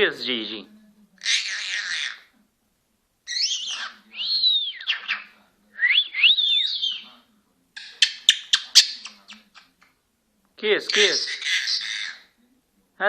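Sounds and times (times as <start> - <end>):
parrot squawk: 0.4 - 2.3, 3.3 - 7.1, 7.8 - 9.7, 10.9 - 12.4
parrot whistles: 3.3 - 7.1.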